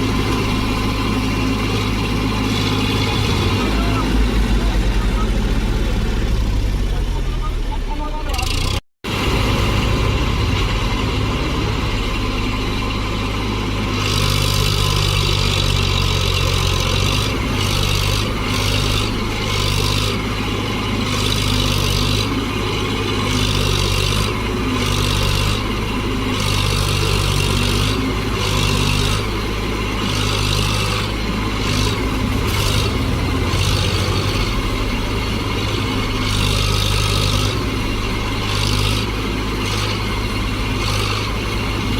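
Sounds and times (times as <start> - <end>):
tractor diesel engine under load: 0.0 - 41.9.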